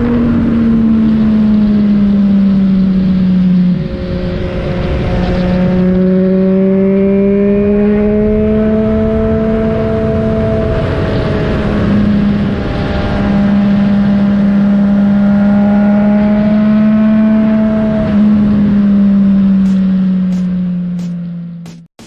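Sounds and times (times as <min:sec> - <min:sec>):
motorcycle engine running: 0:13.8 - 0:21.9.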